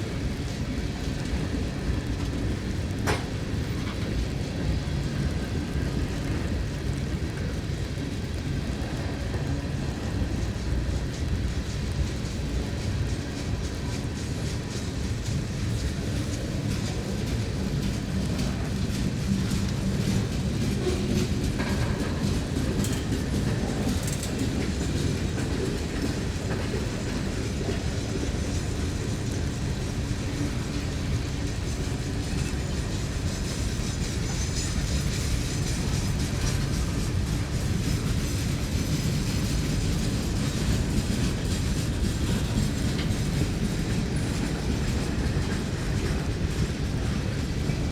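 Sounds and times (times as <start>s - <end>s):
train cars rolling past: 0.0s - 47.9s
wheels clicking over rail joints: 0.1s - 47.9s.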